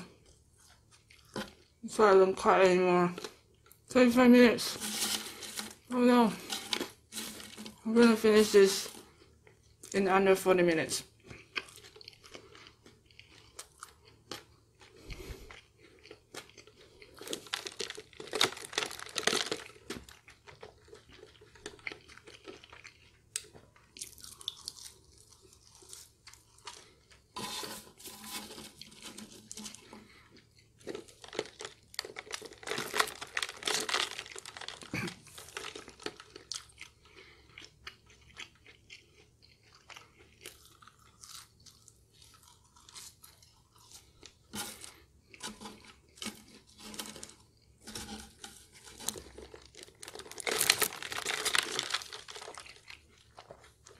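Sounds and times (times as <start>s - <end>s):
person chewing fries: 0.0s - 1.8s, 4.8s - 7.9s, 8.8s - 10.0s, 11.0s - 53.9s.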